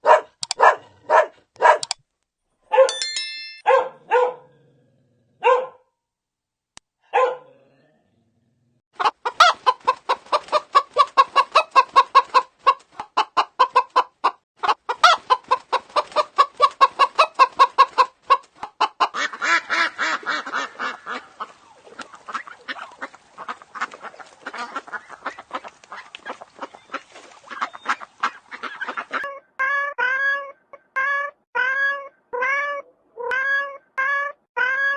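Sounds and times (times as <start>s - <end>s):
chickens clucking: 9.0s - 30.2s.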